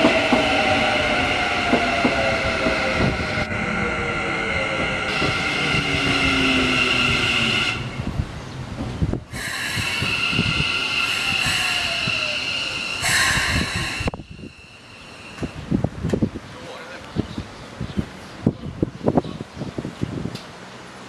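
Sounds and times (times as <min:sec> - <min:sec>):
air hiss: 0:09.3 - 0:15.6
train brakes squealing: 0:09.4 - 0:15.7.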